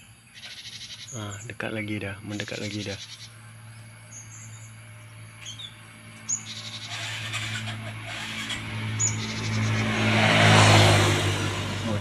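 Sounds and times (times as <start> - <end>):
high bird chirps: 0.0 - 1.5, 2.3 - 10.0
road traffic noise: 0.0 - 12.0
steady low hum: 0.0 - 12.0.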